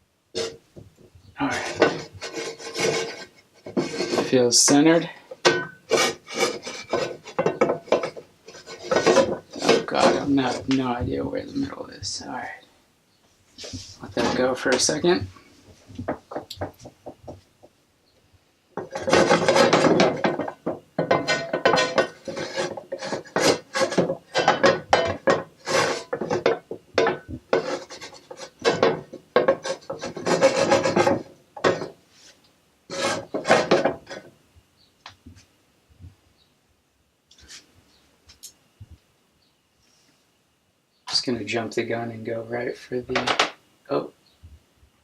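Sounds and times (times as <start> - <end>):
kitchen utensil scraping: 0.4 - 0.6, 1.4 - 11.8, 13.6 - 15.2, 18.8 - 34.3.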